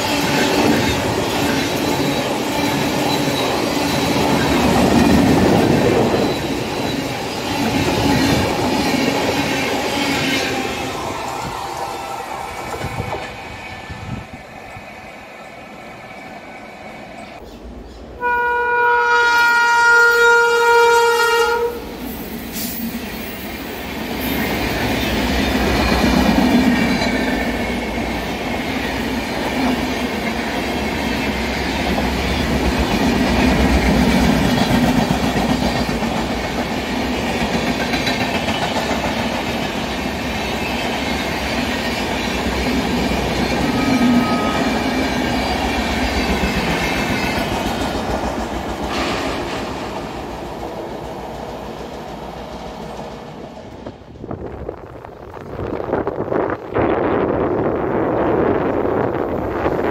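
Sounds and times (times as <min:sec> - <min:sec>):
train coaches clattering over rails: 0:00.0 - 0:14.4, 0:22.2 - 0:54.4
locomotive horn blast: 0:18.2 - 0:21.9.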